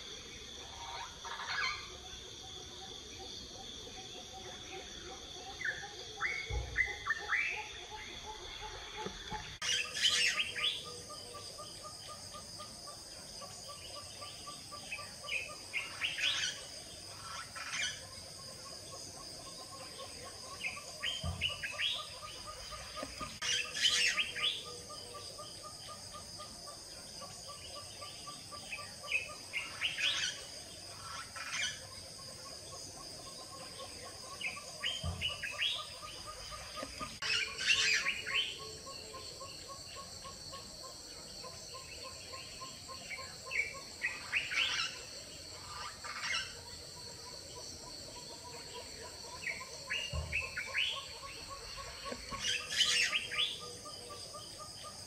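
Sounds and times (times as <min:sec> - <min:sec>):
birds chirping: 0:33.2 - 0:55.0.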